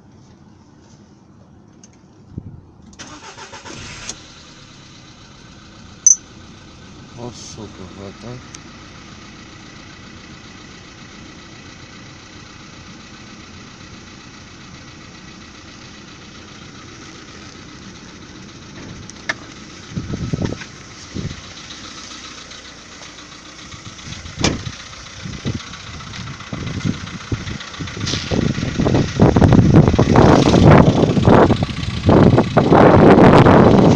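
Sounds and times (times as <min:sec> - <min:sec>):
car engine idling: 0:01.4 - 0:33.9
engine knocks and bumps: 0:16.9 - 0:33.9.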